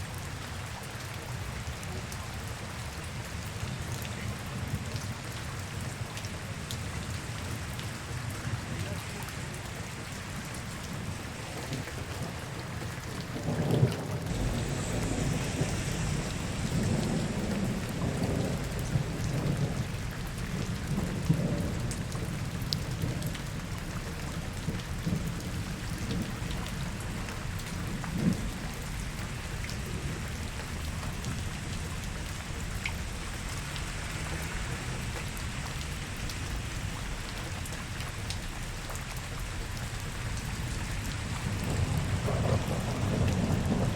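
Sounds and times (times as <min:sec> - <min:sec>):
steady rain falling: 0:00.0 - 0:43.9
low rolling rumble: 0:10.5 - 0:22.6, 0:24.7 - 0:43.9.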